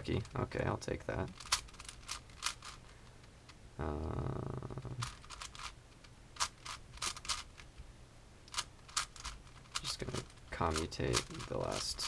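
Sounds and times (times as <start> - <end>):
speed cube clicking: 1.3 - 2.9, 5.0 - 5.8, 6.4 - 7.7, 8.5 - 12.0.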